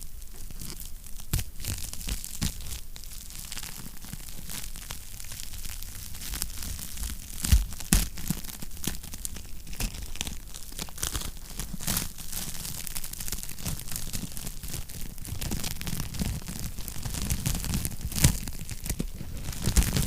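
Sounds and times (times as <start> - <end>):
wood fire crackling: 10.0 - 20.0.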